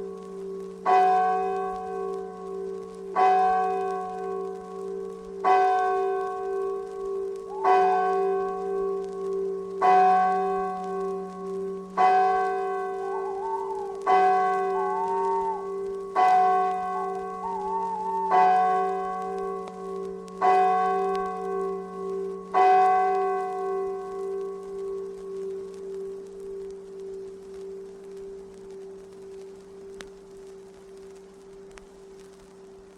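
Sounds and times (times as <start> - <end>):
faint wavering tone: 12.8 - 20.4.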